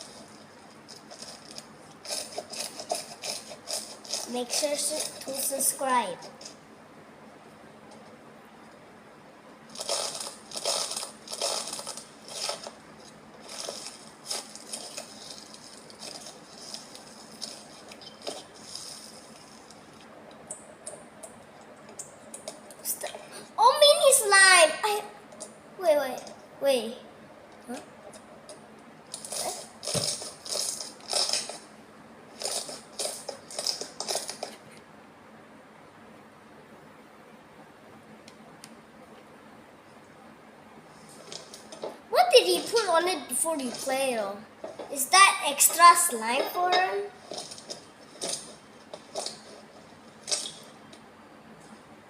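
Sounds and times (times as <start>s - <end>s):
slime squelching: 9.7s - 23.6s.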